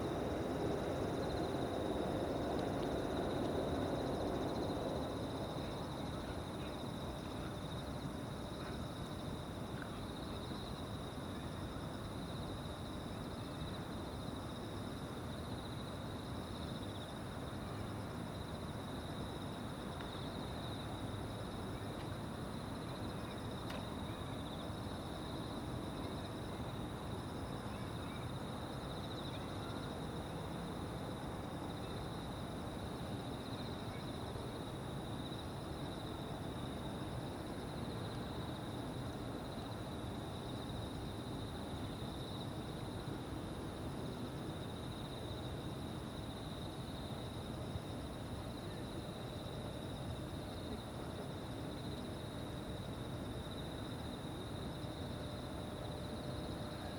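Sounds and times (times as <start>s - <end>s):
insects trilling: 0.0s - 43.1s.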